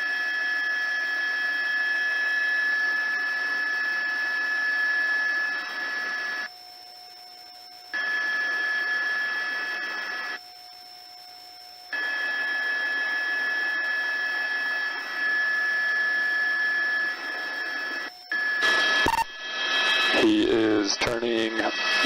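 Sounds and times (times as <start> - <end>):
helicopter cabin hiss with whine: 12.0 - 22.0.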